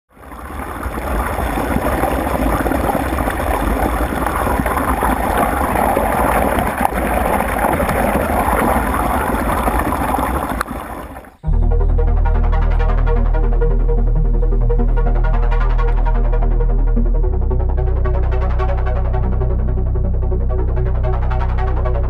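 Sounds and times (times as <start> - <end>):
water rushing: 0.1 - 11.4
boat engine low rumble: 0.1 - 22.0.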